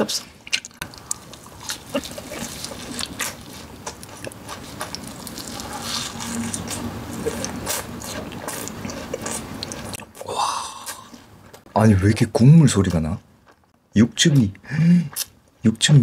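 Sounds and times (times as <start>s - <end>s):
wet chewing of meat: 0.5s - 11.7s.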